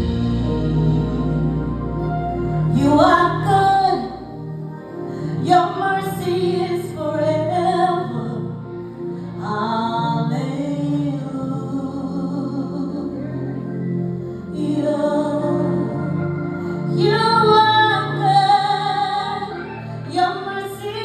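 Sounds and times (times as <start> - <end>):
sustained accompaniment: 0.0 - 21.0
woman singing gospel: 2.7 - 4.4, 5.0 - 8.7, 9.4 - 13.9, 14.5 - 21.0.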